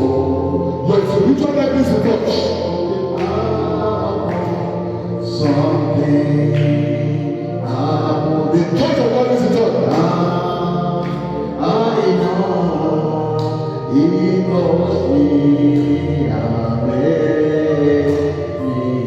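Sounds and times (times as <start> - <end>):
voices singing worship song: 0.0 - 19.0.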